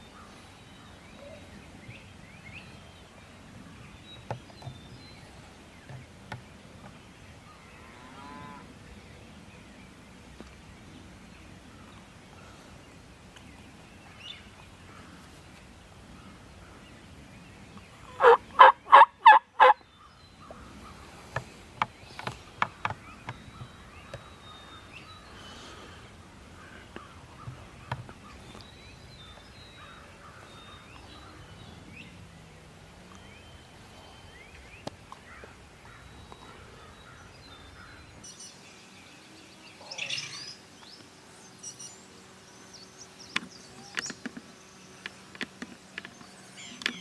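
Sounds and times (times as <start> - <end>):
turkey gobbling: 18.1 - 19.8.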